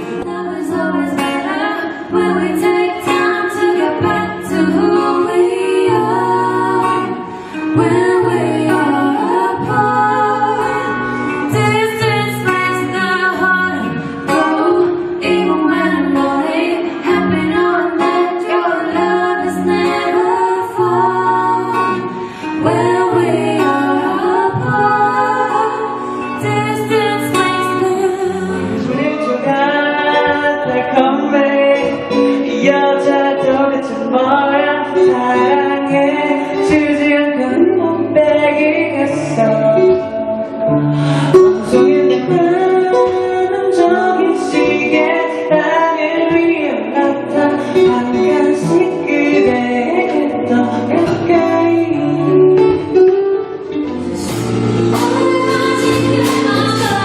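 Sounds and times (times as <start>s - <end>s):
acoustic guitar: 0.0s - 57.0s
woman singing: 0.0s - 57.0s.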